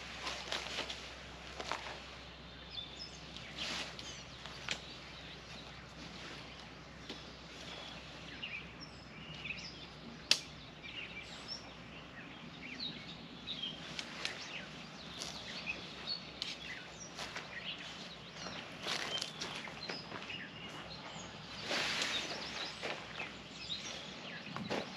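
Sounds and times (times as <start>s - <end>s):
birds chirping and calling: 0.0s - 24.9s
faint outdoor background: 0.0s - 24.9s
sharp click: 10.3s - 10.5s.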